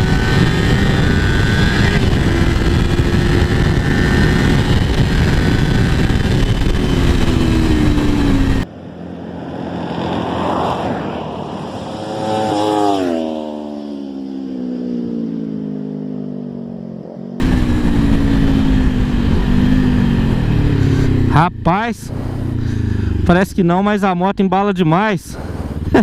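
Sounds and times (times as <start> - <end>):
heavy wind noise: 0.0 - 12.5, 17.4 - 24.0, 25.0 - 26.0
motorcycle engine at full throttle: 0.0 - 24.0, 25.0 - 26.0
engine passing by: 6.9 - 23.3.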